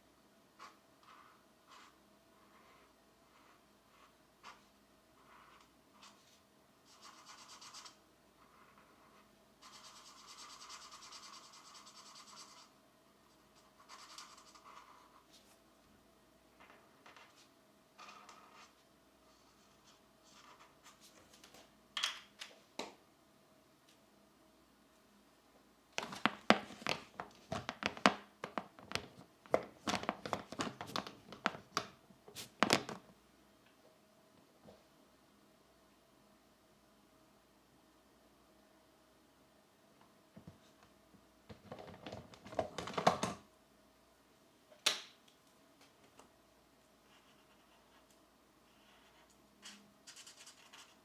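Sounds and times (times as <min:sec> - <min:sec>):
pencil colouring on paper: 0:06.9 - 0:12.7, 0:13.5 - 0:15.2, 0:47.1 - 0:48.1, 0:48.7 - 0:51.0.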